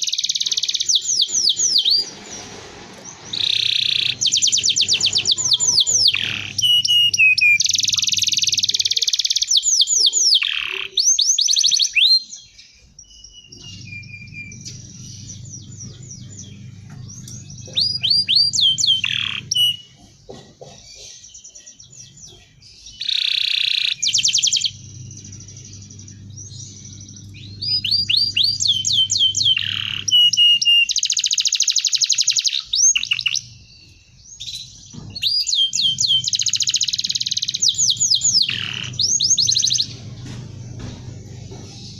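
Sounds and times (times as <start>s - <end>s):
canary singing: 0.0s - 41.9s
low hum: 12.7s - 20.6s, 23.7s - 30.7s, 33.1s - 41.9s.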